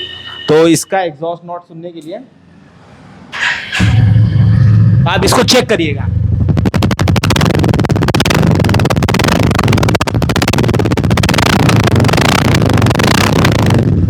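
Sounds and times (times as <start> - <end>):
motorcycle engine running: 6.0 - 14.0.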